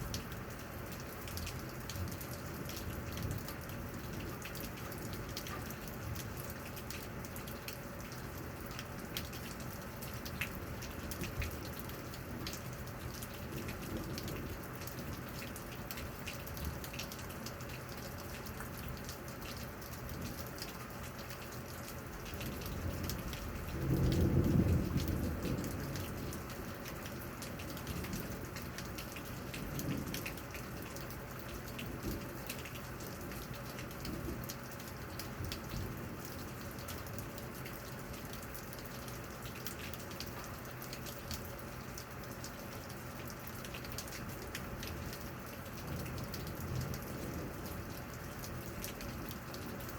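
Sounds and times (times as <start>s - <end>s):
raindrops ticking: 0.0s - 49.9s
steady rain: 0.0s - 49.9s
low thunder rumble: 22.4s - 26.8s, 45.8s - 48.1s.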